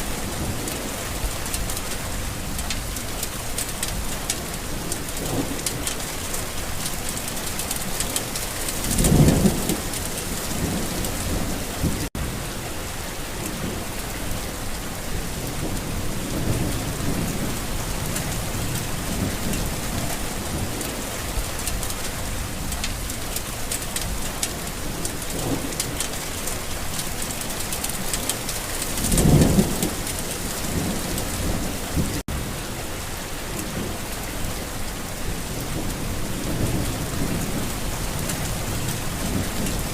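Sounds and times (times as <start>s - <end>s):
thunder rumbles: 0.0s - 12.4s, 14.6s - 32.7s, 33.5s - 39.9s
steady rain: 0.0s - 39.9s.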